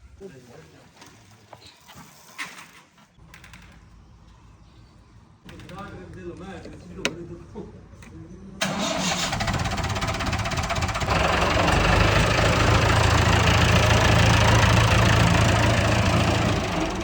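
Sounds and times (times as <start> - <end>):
tractor engine revving: 8.6 - 17.0.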